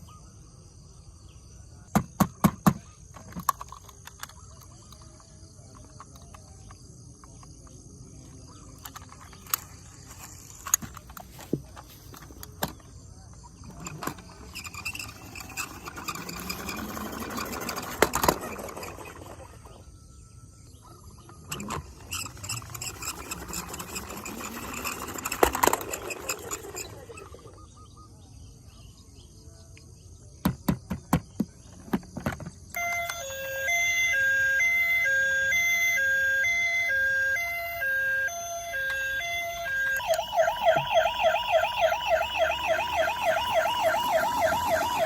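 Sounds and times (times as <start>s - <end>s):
toy rushing noise: 13.4s - 20.0s, 21.1s - 27.6s, 32.8s - 45.0s
toy clicks: 13.6s - 19.4s, 21.4s - 27.3s
electronic two-tone siren: 13.8s - 20.0s, 32.7s - 45.0s.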